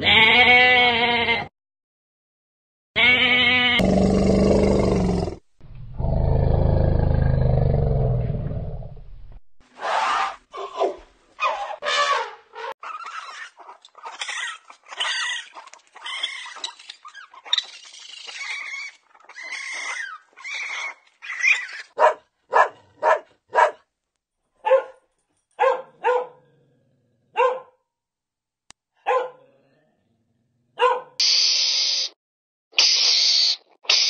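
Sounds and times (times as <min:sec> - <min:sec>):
animal squealing and chittering: 0:12.8 - 0:22.0, 0:32.8 - 0:34.0
puppy barking: 0:22.0 - 0:23.8, 0:24.6 - 0:25.0, 0:25.6 - 0:26.4, 0:27.4 - 0:27.8, 0:29.0 - 0:29.5, 0:30.8 - 0:31.2.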